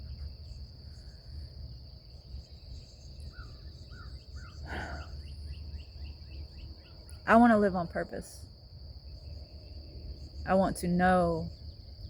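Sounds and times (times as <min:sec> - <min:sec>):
high-pitched insect trill: 0:00.0 - 0:12.0
bird chirps: 0:02.1 - 0:07.3.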